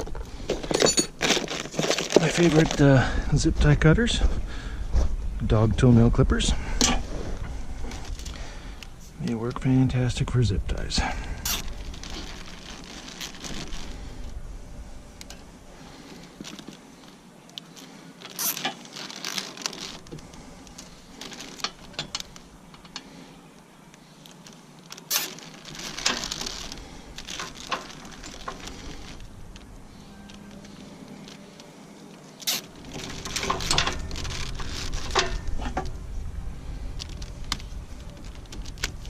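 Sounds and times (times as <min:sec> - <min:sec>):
light metallic rattles: 0:32.4 - 0:39.0.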